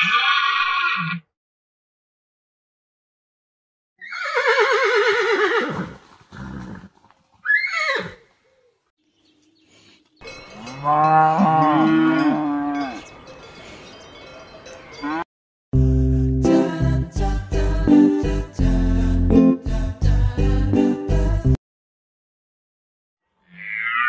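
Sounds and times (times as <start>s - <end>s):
horse whinnying: 0.0s - 1.3s, 4.0s - 8.3s
cow mooing: 10.5s - 13.1s.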